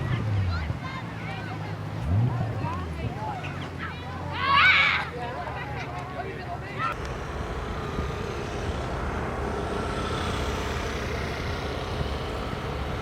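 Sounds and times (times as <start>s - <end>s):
low engine rumble: 0.0s - 13.0s
faint steady tones: 5.9s - 13.0s.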